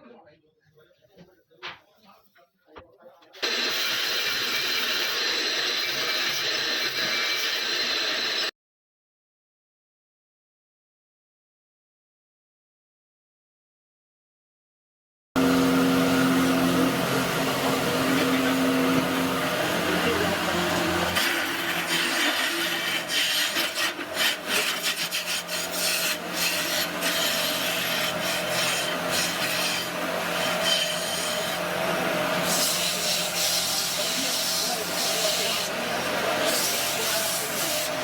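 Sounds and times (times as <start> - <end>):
tool scraping spinning wood: 3.4 - 8.5, 15.4 - 38.0
wood lathe motor hum: 3.4 - 8.5, 15.4 - 38.0.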